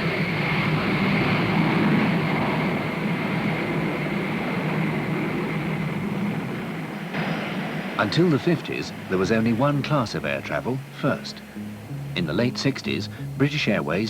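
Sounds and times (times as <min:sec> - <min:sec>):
jet engines rushing and whining: 0:00.0 - 0:11.8.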